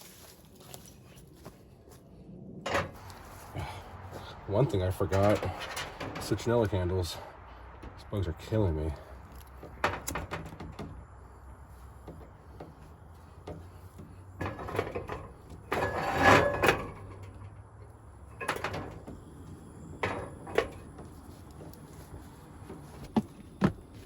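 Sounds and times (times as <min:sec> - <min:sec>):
rustling or scraping: 0:00.0 - 0:02.0, 0:02.7 - 0:17.5
distant road traffic hum: 0:00.0 - 0:24.0.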